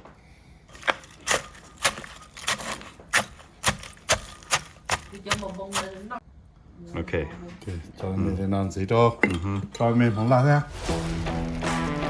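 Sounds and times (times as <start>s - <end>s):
knife chopping on wooden board: 0.8s - 6.0s.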